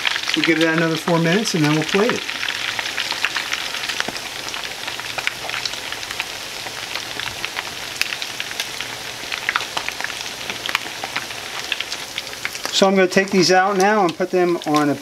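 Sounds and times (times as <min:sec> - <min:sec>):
fish cakes sizzling in oil: 0:00.0 - 0:15.0.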